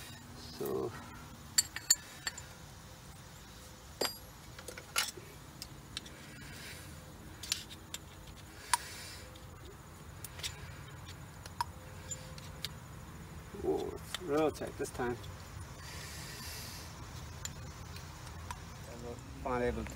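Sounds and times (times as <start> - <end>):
light metallic clinks and taps: 1.6 - 2.5.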